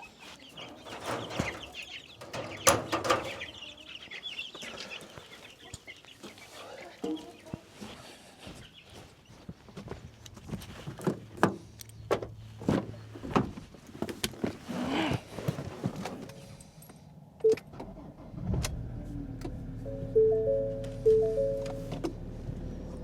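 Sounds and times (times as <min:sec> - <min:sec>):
vehicle engine running: 0:17.9 - 0:23.0
note-like tones: 0:19.8 - 0:22.1.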